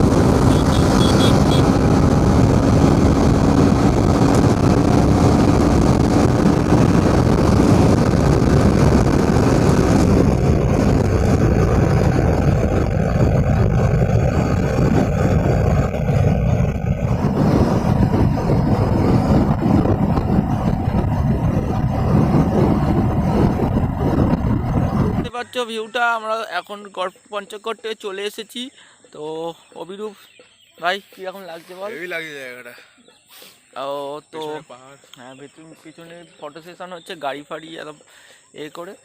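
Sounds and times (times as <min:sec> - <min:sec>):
motorcycle engine running: 0:00.0 - 0:25.3
road and wind noise: 0:00.0 - 0:39.0.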